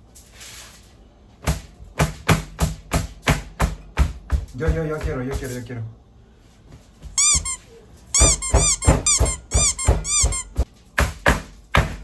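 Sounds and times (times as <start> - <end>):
high-pitched squeaks: 7.2 - 10.6.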